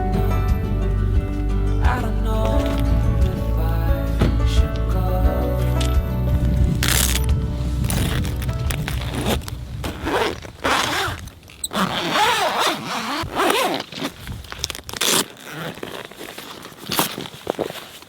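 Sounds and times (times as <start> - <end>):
squeaky sliding sounds: 7.0 - 18.0.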